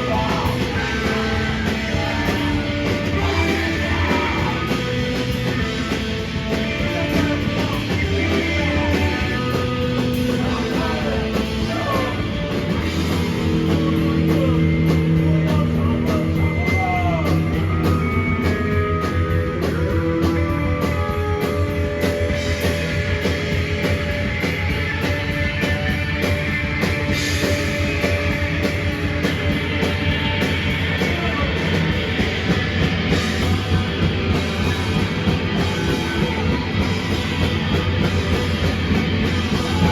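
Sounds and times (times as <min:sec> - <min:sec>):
person singing: 0:00.0 - 0:05.9, 0:06.5 - 0:12.6, 0:39.4 - 0:39.9
bass: 0:00.0 - 0:39.9
distorted electric guitars: 0:00.0 - 0:39.9
drum kit: 0:00.0 - 0:39.9.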